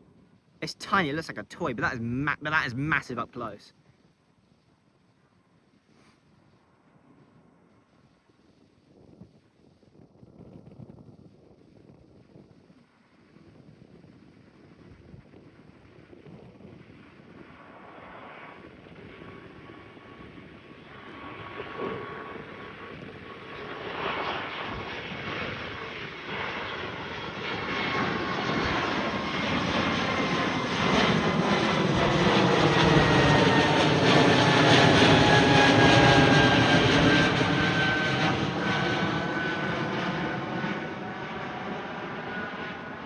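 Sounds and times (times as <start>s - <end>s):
jet airliner passing overhead: 0.0s - 3.7s, 13.0s - 43.0s.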